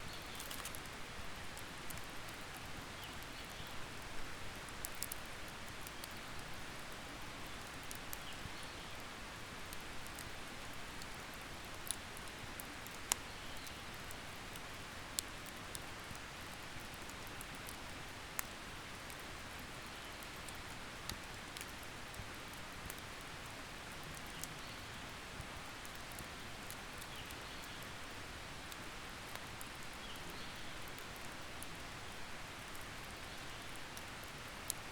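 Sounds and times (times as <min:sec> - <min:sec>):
campfire crackling and popping: 0:00.1 - 0:02.6.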